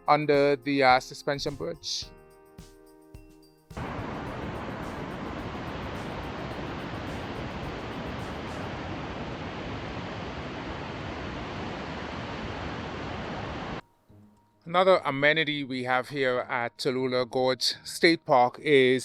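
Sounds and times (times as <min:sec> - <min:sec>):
river water rushing over cascades: 0:03.8 - 0:13.8.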